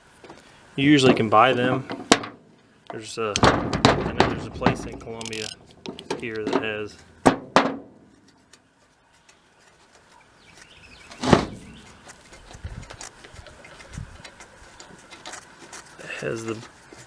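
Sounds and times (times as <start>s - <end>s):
sharp knocks and clicks: 3.4s - 8.0s.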